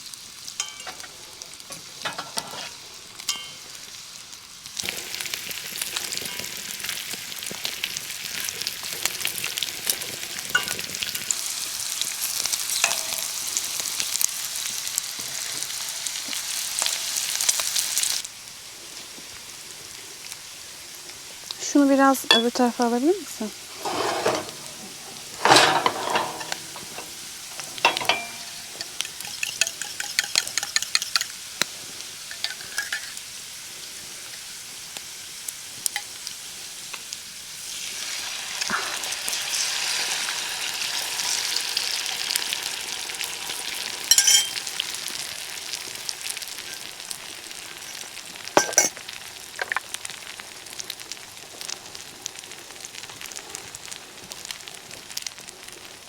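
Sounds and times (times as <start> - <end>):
food sizzling in a frying pan: 0.0 - 56.0
utensil knocking against pan: 23.8 - 31.3.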